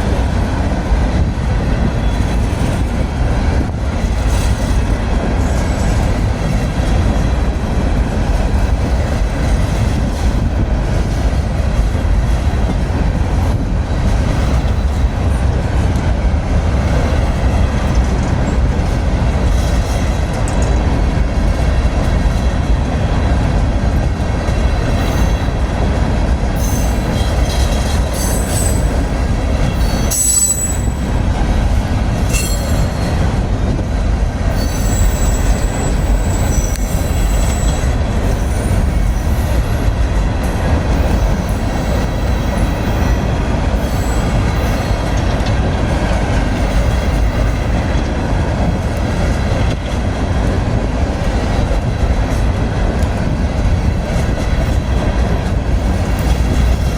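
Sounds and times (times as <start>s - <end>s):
train wheels rumbling on rails: 0.0s - 56.9s
wheel squeals: 26.6s - 29.0s, 29.6s - 31.0s, 32.3s - 33.1s, 34.6s - 39.7s, 43.8s - 45.0s.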